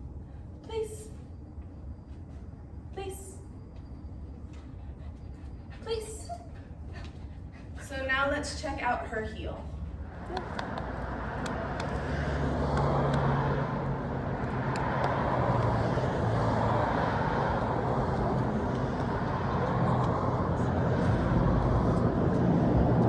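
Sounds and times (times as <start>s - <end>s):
motor vehicle running: 9.4s - 23.0s.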